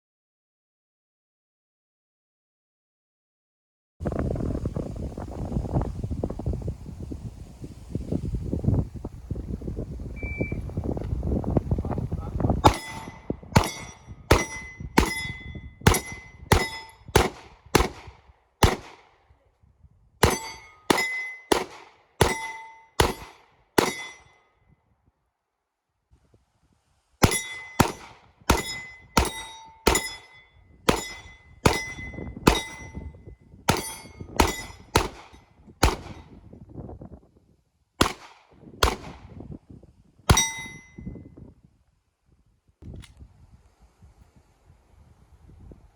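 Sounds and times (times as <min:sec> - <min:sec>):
gunshots: 0:12.6 - 0:15.2, 0:15.9 - 0:19.1, 0:20.2 - 0:24.2, 0:27.2 - 0:30.3, 0:33.7 - 0:36.3, 0:38.0 - 0:39.3
steel plate clanging: 0:12.6 - 0:17.0, 0:27.2 - 0:33.0, 0:33.7 - 0:34.9.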